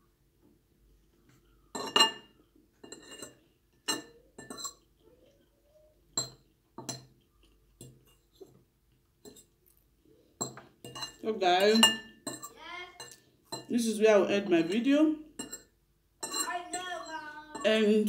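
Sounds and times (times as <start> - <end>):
cutlery clinking against dish: 1.8 - 4.8, 6.2 - 8.6, 9.2 - 9.6, 10.4 - 13.7, 15.4 - 17.8.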